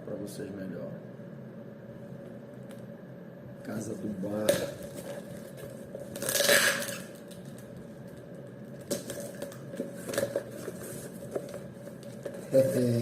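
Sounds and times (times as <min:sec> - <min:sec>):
packaging rustling and tearing: 0:04.7 - 0:12.9.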